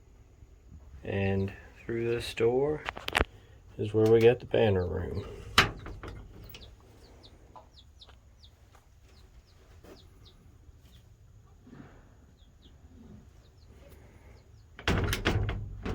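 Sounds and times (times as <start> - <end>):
baby chicks peeping: 3.8 - 11.6, 12.2 - 14.8.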